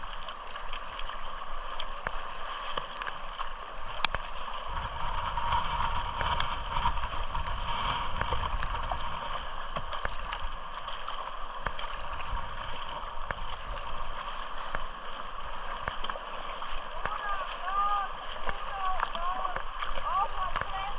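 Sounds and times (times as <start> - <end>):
water lapping against kayak: 0.0 - 20.9
small knocks and clicks: 1.8 - 4.3, 9.7 - 13.9, 15.8 - 17.4
low rumble: 4.5 - 10.8.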